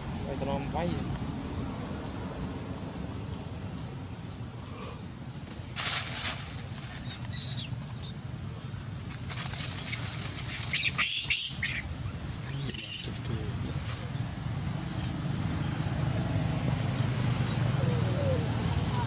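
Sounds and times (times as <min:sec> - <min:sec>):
baby monkey squealing: 0:07.0 - 0:08.2, 0:09.8 - 0:11.9, 0:12.5 - 0:13.1.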